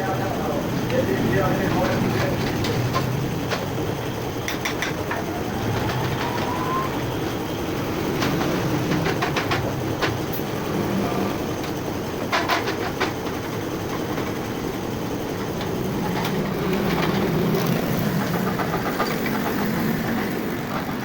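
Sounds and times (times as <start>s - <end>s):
faint rising whine: 0.0s - 11.5s
vehicle engine rumble: 0.0s - 21.0s
sharp clicks and knocks: 0.8s - 10.6s, 11.5s - 14.6s.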